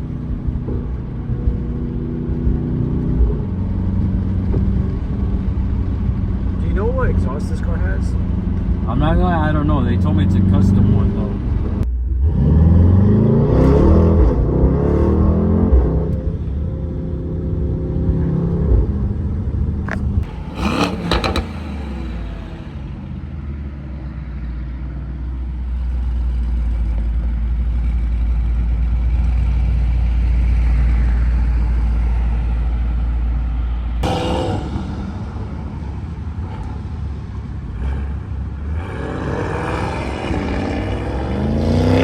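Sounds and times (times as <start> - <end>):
car engine accelerating: 0.0 - 42.0
exhaust crackles: 0.0 - 42.0.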